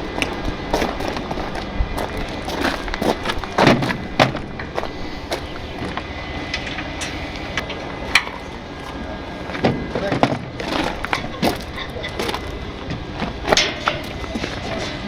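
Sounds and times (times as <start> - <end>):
vehicle running: 0.0 - 15.0
sharp knocks and clanks: 2.6 - 4.8, 9.6 - 15.0.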